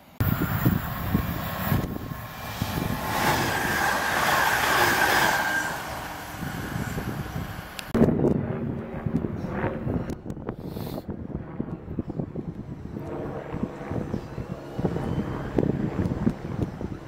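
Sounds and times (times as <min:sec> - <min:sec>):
train wheels rushing on rail: 0:00.2 - 0:08.0
wind buffeting microphone: 0:00.2 - 0:17.0.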